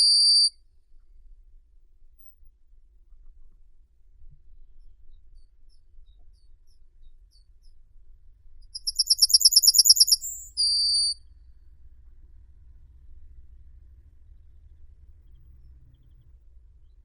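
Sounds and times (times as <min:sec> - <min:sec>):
songbird trilling and whistling: 0:00.0 - 0:00.5, 0:08.8 - 0:11.2.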